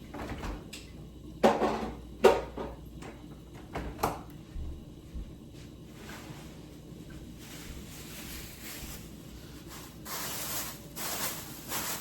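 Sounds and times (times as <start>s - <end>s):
kitchen items knocking and clanking: 0.0s - 0.7s, 1.4s - 4.2s.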